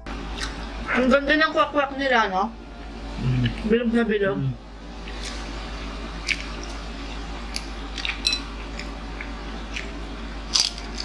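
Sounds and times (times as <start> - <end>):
steady low hum: 0.0 - 11.0
people chewing: 0.3 - 0.7, 5.0 - 5.6, 6.2 - 11.0.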